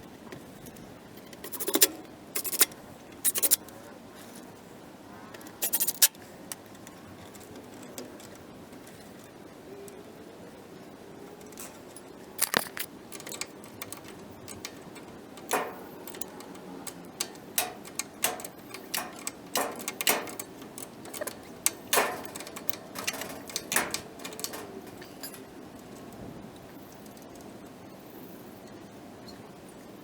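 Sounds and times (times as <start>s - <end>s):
hard tools clicking and clacking: 1.3s - 3.6s, 5.6s - 8.4s, 11.4s - 26.1s.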